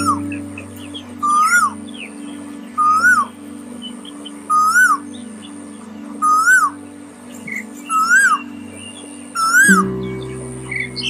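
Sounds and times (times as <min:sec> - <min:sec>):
low music drone: 0:00.0 - 0:11.0
thin high chirp: 0:09.0 - 0:11.0.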